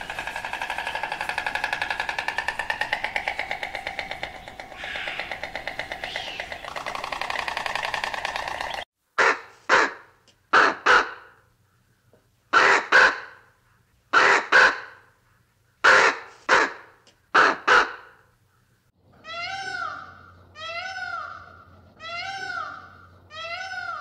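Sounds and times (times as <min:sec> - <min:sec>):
rapid buzzing: 0:00.0 - 0:08.9
bird cawing: 0:00.0 - 0:11.9.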